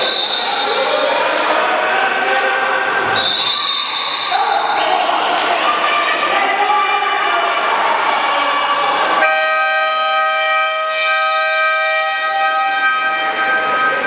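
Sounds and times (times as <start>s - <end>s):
game horn long blast: 9.2s - 14.0s.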